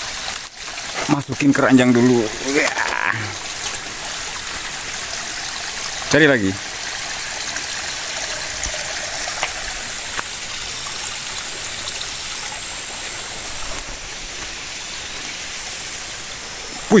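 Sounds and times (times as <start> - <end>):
running water rushing: 0.0 - 17.0
faint clicks: 7.2 - 14.6.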